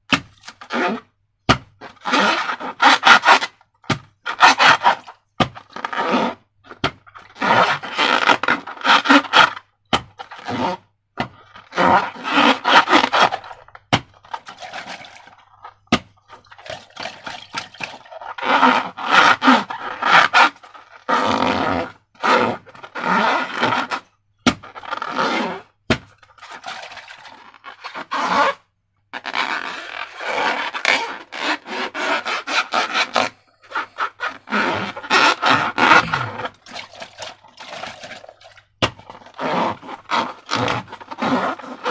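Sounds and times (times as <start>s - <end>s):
slime squelching by hand: 33.8s - 41.0s.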